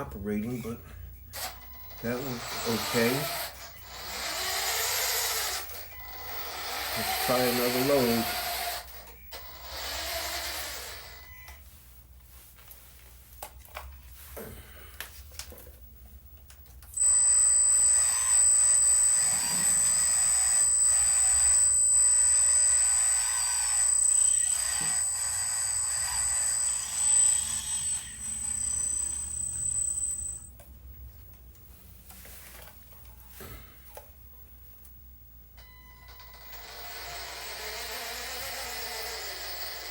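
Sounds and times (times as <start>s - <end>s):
electric pump whining: 1.2s - 11.6s, 17.0s - 30.6s, 35.6s - 39.9s.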